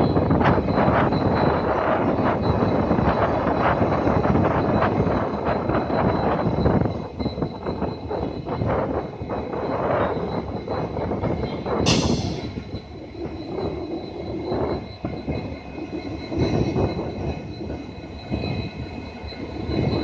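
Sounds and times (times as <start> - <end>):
high squeal from wheels: 0.0 - 20.0
train wheels rumbling: 0.0 - 20.0
sudden sharp burst: 11.9 - 12.7.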